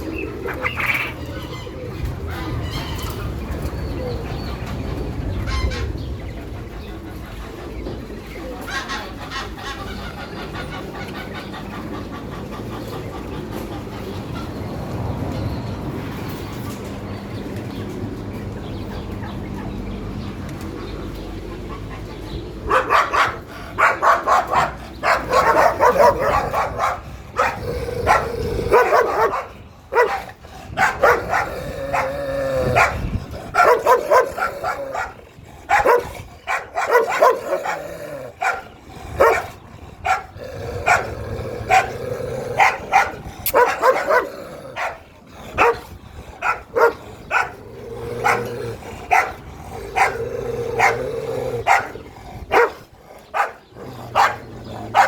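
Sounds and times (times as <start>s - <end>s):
dogs barking: 0.0s - 14.6s, 18.7s - 55.0s.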